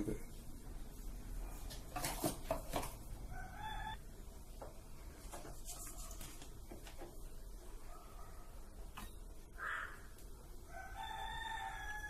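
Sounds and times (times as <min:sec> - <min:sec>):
bird calling: 0:09.6 - 0:10.1.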